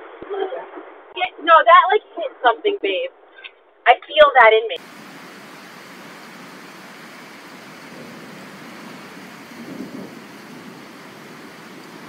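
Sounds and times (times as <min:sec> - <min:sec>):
steady rain falling: 0:04.8 - 0:12.0.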